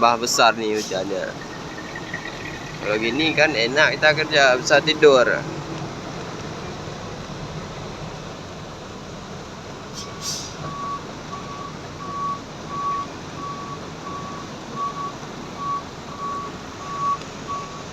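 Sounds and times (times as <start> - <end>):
reversing beeper: 0.8 - 5.8, 10.7 - 17.9
heavy rain: 0.9 - 10.0
short hiss: 9.9 - 10.7.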